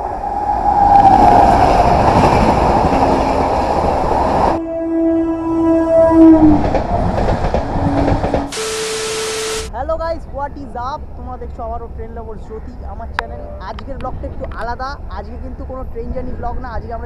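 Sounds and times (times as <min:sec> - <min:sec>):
train rushing past: 0:00.0 - 0:04.6, 0:05.9 - 0:08.6
train horn: 0:04.5 - 0:06.6.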